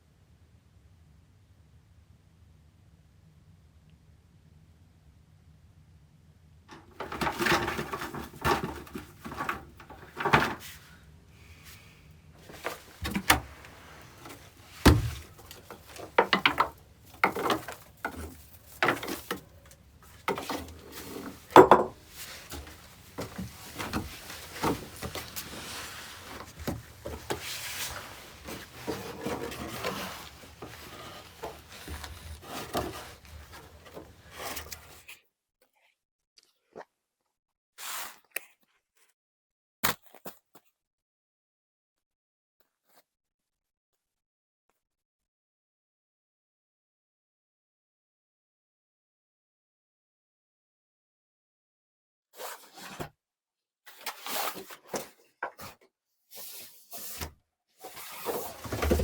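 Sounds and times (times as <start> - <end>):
handling knocks and scrapes: 6.7 - 35.0, 57.0 - 59.0
rubbing and rustling: 6.7 - 35.0, 57.0 - 59.0.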